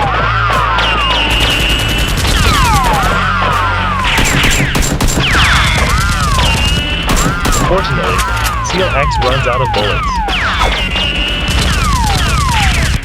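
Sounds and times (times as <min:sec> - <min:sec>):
low music bed: 0:00.0 - 0:13.0
rapid gunfire: 0:00.0 - 0:13.0.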